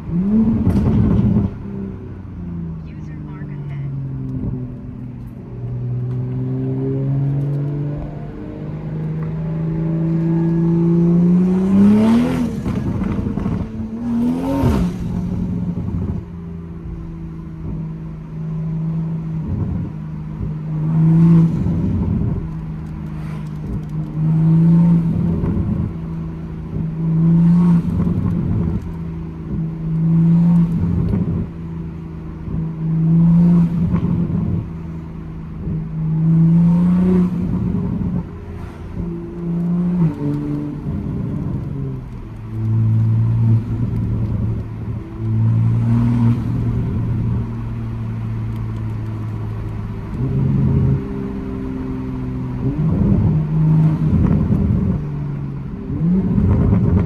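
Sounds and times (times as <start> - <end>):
car engine and exhaust cruising: 0.0 - 57.0.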